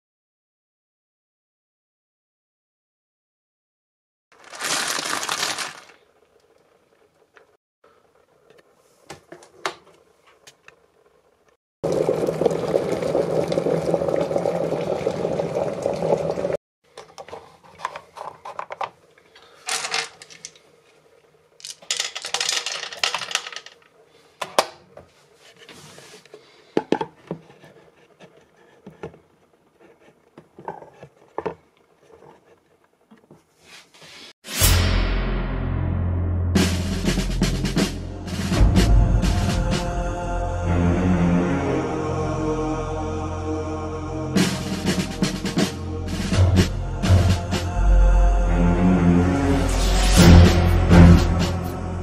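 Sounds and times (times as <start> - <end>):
sweets clattering: 4.3 - 6.7, 21.6 - 24.0.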